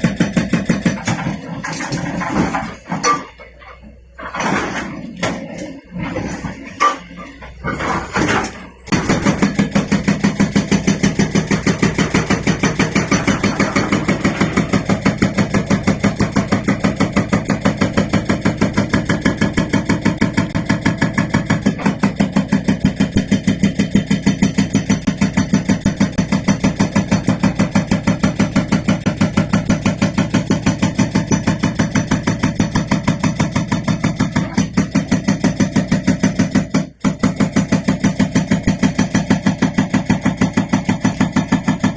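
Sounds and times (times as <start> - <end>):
excavator engine drone: 0.0 - 33.6
hydraulic breaker hammering rock: 0.0 - 41.9.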